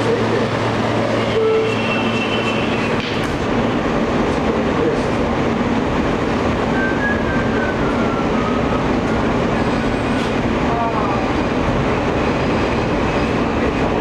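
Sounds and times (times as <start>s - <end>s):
subway train wheels rumbling on rail: 0.0s - 14.0s.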